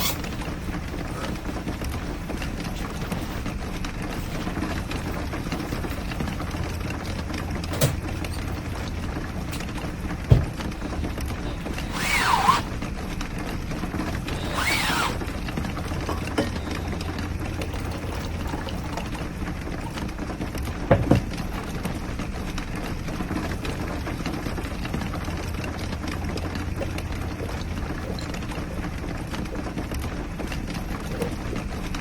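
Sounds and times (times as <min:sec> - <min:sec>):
short squeaks: 0:00.0 - 0:01.4, 0:10.4 - 0:12.8, 0:14.1 - 0:18.0
rain on a camper: 0:00.0 - 0:32.0.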